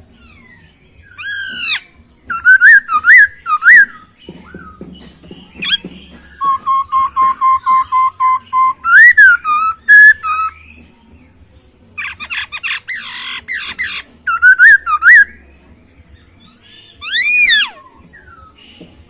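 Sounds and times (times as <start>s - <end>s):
bird whistling song: 0.1s - 10.9s, 12.0s - 15.5s, 16.1s - 19.0s
bird harsh scratchy chatter: 1.1s - 10.6s, 12.0s - 15.3s.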